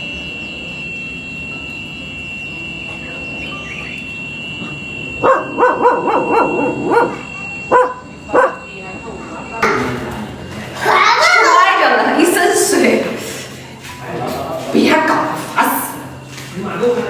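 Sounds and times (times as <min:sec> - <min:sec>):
dog barking: 0:05.2 - 0:08.7.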